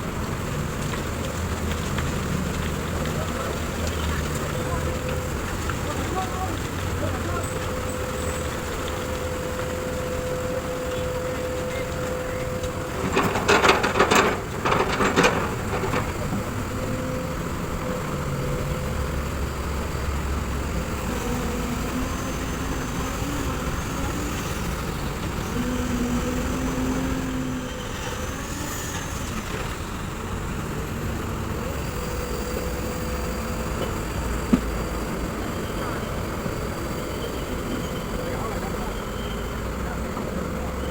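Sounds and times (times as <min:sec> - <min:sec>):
excavator diesel engine running: 0:00.0 - 0:40.9
loud knocks and clatter: 0:13.0 - 0:16.6.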